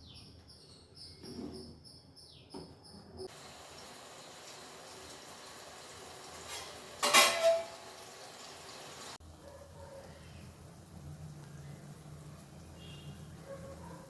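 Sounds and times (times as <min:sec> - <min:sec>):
steady hiss: 0:03.3 - 0:09.2
metal utensil clattering on pot: 0:06.4 - 0:07.8.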